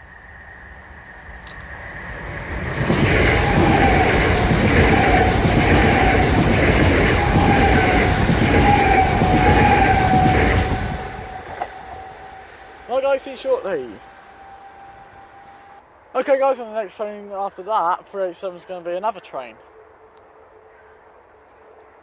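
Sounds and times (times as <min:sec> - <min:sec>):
wavering whine: 0:00.0 - 0:15.8
train passing rumble: 0:00.0 - 0:16.1
rhythmic clatter of wheels: 0:00.8 - 0:12.2.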